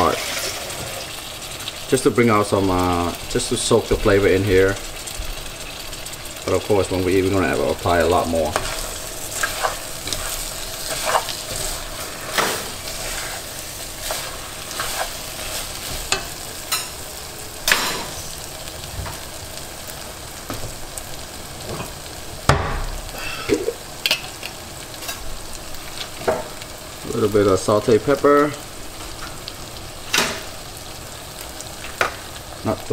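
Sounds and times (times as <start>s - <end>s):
food sizzling in butter: 0.0s - 32.9s
spatula scraping a pot: 8.5s - 16.9s.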